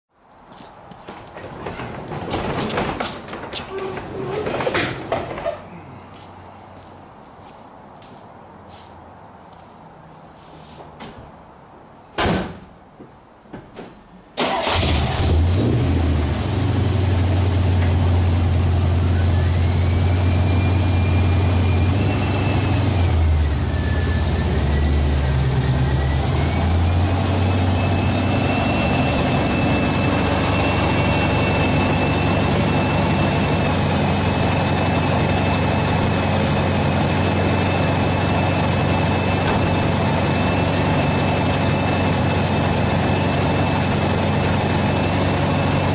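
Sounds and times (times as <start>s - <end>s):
high engine whine: 14.4s - 45.9s
pickup engine starting and idling: 14.4s - 45.9s.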